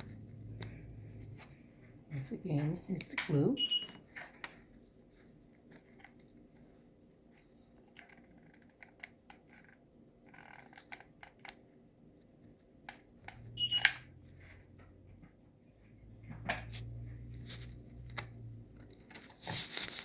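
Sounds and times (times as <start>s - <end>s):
craft material rustling: 18.8s - 20.0s.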